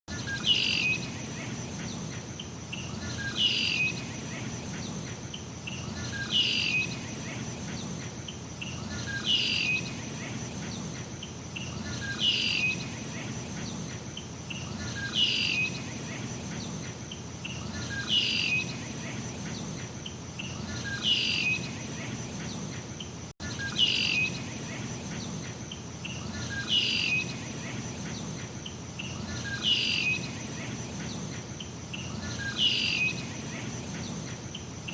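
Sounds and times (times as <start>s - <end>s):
high-pitched insect trill: 0.1s - 34.9s.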